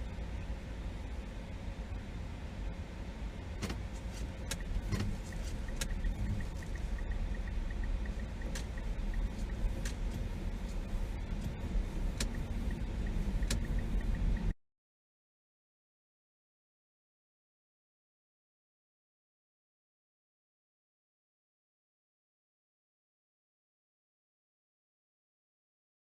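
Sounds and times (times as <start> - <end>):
engine and road rumble: 0.0 - 14.6
sharp clicks: 12.1 - 14.1.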